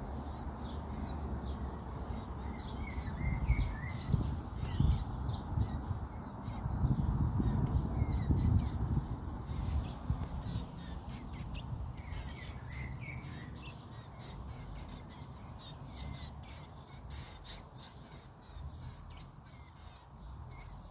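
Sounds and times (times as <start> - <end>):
birds chirping: 0.0 - 20.9.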